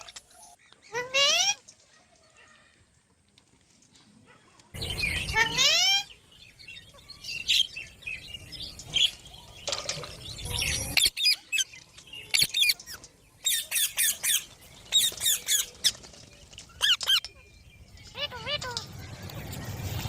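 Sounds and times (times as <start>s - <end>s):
parrots squawking: 4.8s - 6.2s, 18.1s - 19.0s.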